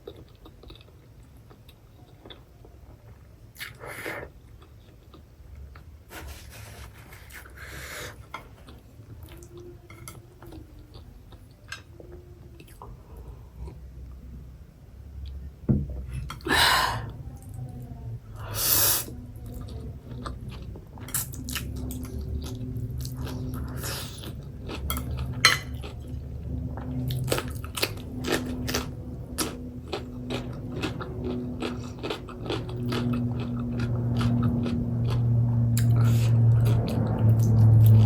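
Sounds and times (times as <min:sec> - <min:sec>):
person chewing food: 0:00.0 - 0:14.2, 0:19.0 - 0:38.0
noisy rushes: 0:34.8 - 0:38.0.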